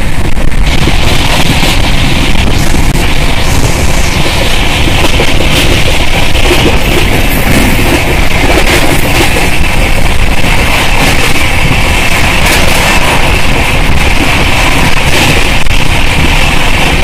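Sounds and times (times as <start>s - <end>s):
rush of wind from moving train: 0.0s - 17.0s.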